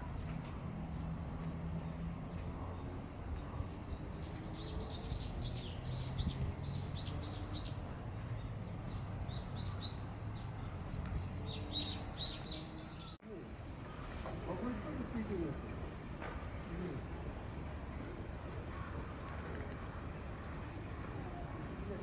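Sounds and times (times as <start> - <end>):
small bird chirping: 8.4 - 13.2.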